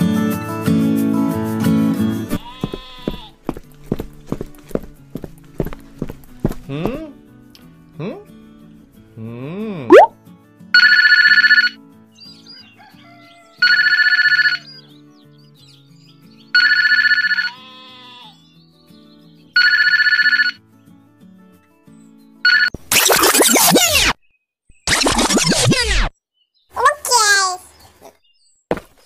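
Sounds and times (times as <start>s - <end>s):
soft background music: 1.0s - 22.6s
telephone ringtone: 10.8s - 11.8s, 13.6s - 14.6s, 16.6s - 17.5s, 19.6s - 20.6s, 22.5s - 22.7s.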